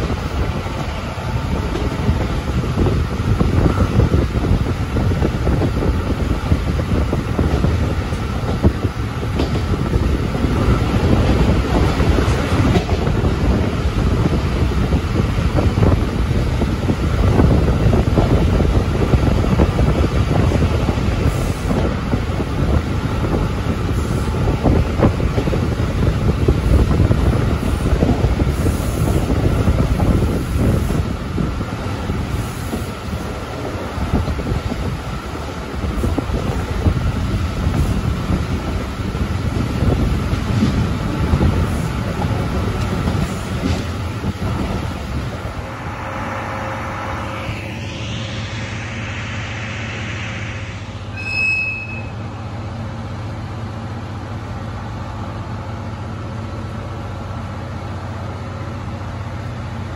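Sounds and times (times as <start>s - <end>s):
train wheels rumbling on rails: 0.0s - 51.2s
thin squeal: 45.6s - 52.3s.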